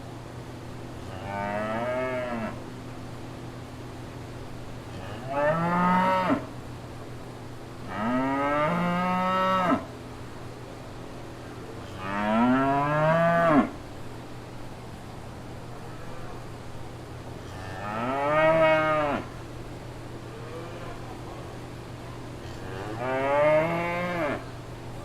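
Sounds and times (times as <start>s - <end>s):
cow mooing: 1.1s - 2.6s, 12.0s - 13.8s, 17.5s - 19.3s, 22.5s - 24.5s.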